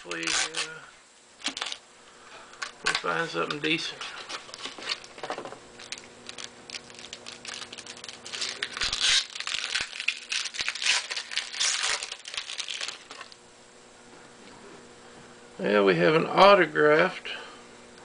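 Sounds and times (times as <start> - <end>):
card wrapper crinkling: 0.0 - 0.8, 1.4 - 1.8, 2.6 - 13.4
faint steady hum: 0.0 - 18.0.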